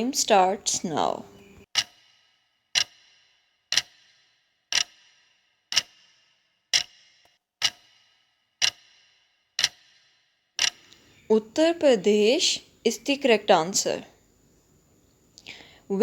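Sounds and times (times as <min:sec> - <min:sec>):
countdown timer ticking: 0:01.7 - 0:10.9.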